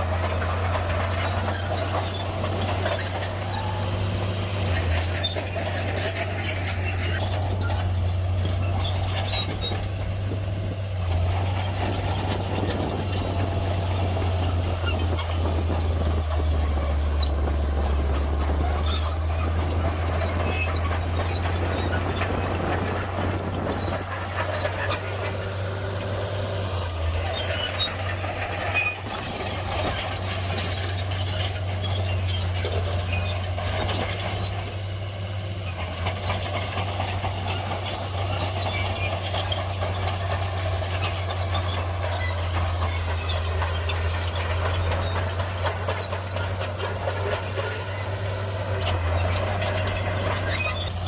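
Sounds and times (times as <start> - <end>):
bulldozer diesel engine running: 0.0 - 51.0
clanks of steel tracks and blade: 26.7 - 34.7, 35.6 - 51.0.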